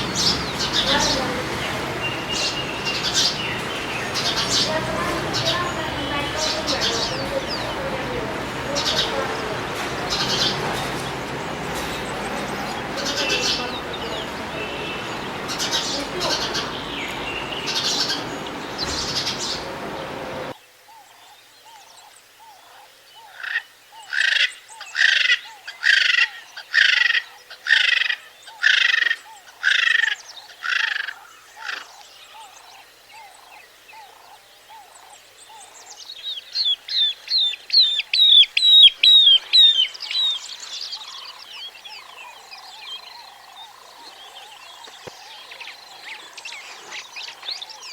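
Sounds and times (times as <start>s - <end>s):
noise bursts: 0.0s - 20.6s
bird calls: 0.0s - 47.9s
faint bird chirping: 0.0s - 47.9s
sharp bird chirps: 35.6s - 47.9s.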